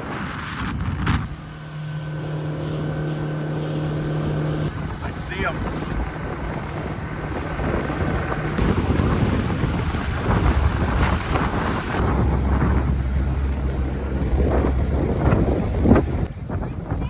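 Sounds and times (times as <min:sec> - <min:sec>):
boat motor running: 0:00.0 - 0:16.3
wind buffeting microphone: 0:00.0 - 0:17.0.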